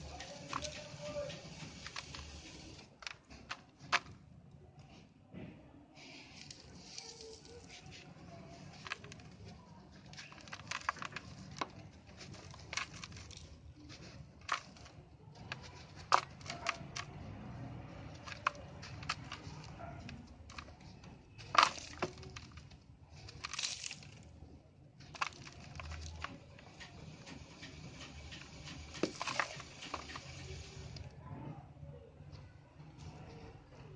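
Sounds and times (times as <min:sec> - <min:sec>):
dried dirt crunching and crumbling: 0:06.0 - 0:31.1.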